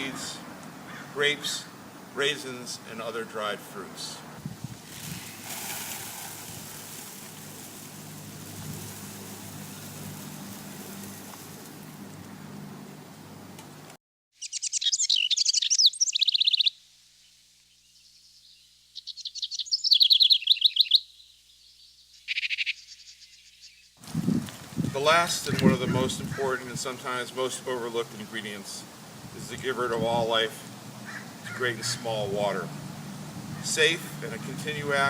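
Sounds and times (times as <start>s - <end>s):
outdoor background hiss: 0.0s - 35.0s
songbird chirping trills: 14.3s - 24.0s.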